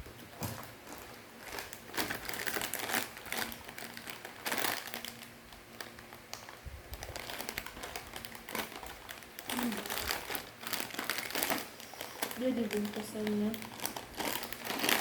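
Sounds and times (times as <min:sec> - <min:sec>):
crispy snack crackling and crunching: 0:00.4 - 0:15.0.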